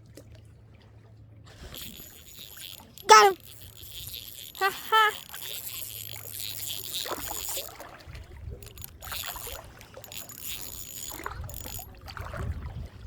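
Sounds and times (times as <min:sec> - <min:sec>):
fishing reel whirring and clicking: 0:01.5 - 0:12.0.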